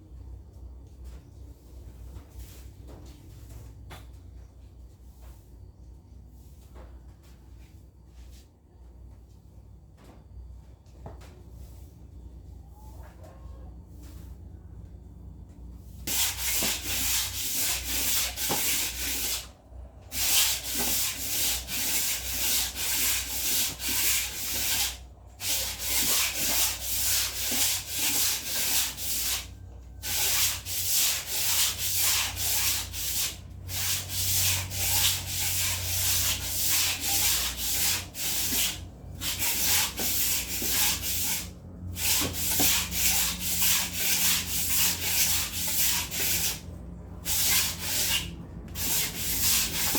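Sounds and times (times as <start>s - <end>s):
hand scrubbing a hard surface: 16.0s - 19.5s, 20.1s - 46.6s, 47.2s - 49.9s.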